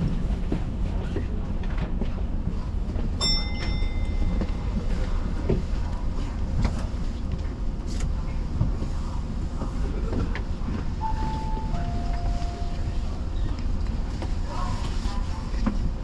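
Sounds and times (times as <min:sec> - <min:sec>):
train rumbling: 0:00.0 - 0:16.0
bell-like ring: 0:03.2 - 0:04.8, 0:11.0 - 0:13.2
two-note chime: 0:11.0 - 0:13.2.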